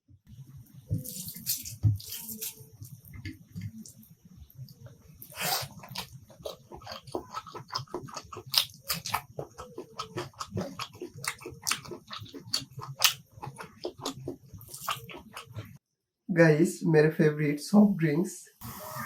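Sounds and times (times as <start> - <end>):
wet chewing and lip smacking: 4.6 - 15.8.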